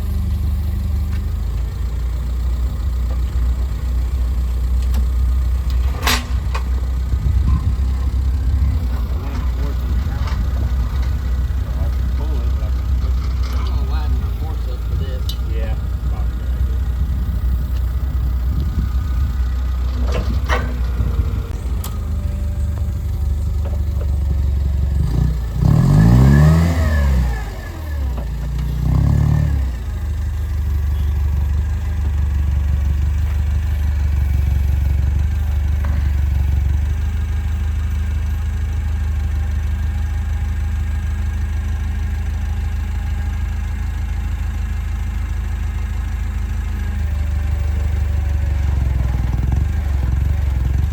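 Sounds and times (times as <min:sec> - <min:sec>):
vehicle engine running: 0:00.0 - 0:50.9.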